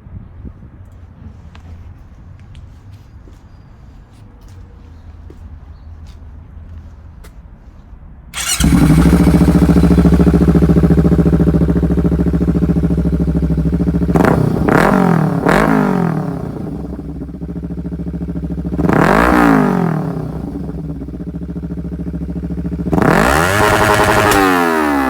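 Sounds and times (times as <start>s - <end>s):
motorcycle engine revving: 8.4s - 25.0s.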